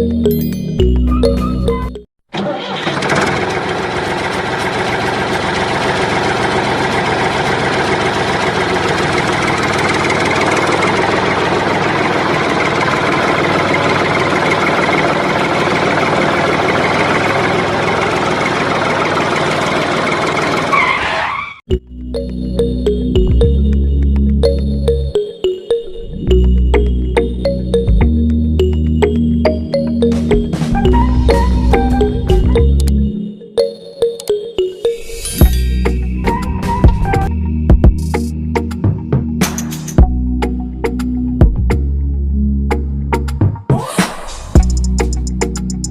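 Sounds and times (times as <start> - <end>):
engine running: 2.4 - 20.8, 44.3 - 45.9.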